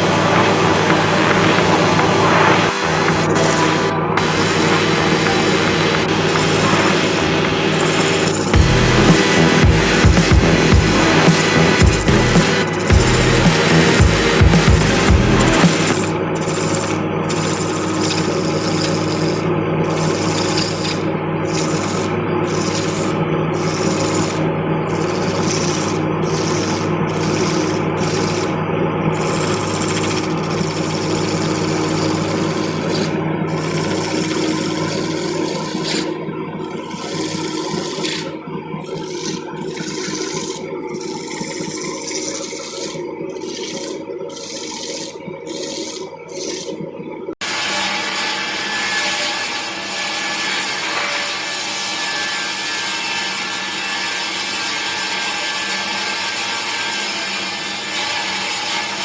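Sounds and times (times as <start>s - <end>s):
wood lathe motor hum: 0.0s - 19.4s
tool scraping spinning wood: 0.0s - 46.8s.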